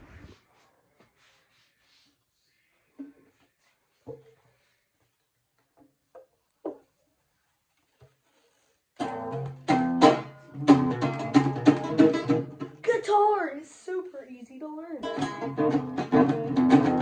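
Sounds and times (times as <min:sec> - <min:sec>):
guitar strummed in chords: 0:09.0 - 0:12.8, 0:15.0 - 0:17.0.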